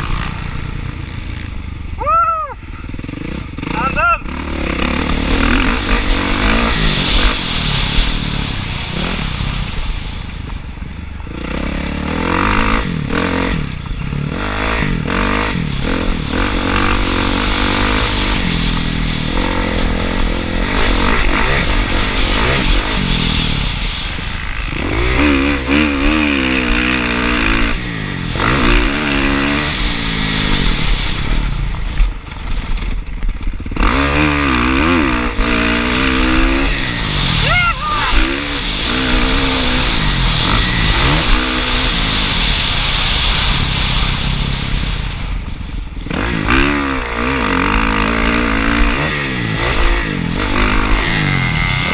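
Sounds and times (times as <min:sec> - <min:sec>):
dirt bike engine revving: 0:00.0 - 0:51.9
wind noise: 0:12.2 - 0:51.9.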